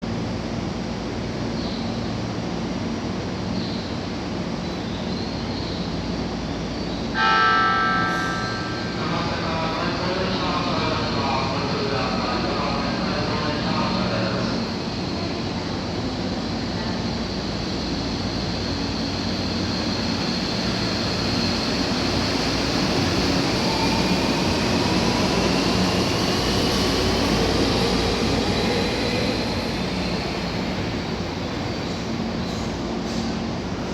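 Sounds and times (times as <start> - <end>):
electric train accelerating: 7.1 - 33.9.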